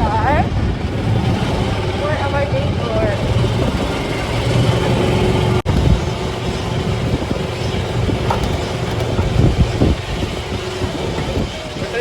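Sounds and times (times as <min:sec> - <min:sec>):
road and wind noise: 0:00.0 - 0:12.0
golf cart motor hum: 0:03.2 - 0:12.0.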